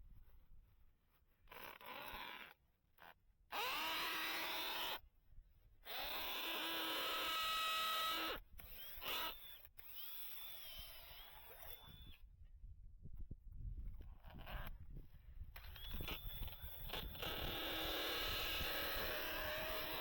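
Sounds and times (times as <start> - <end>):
power drill motor whine: 3.5 - 5.0, 5.8 - 12.2, 15.6 - 20.0.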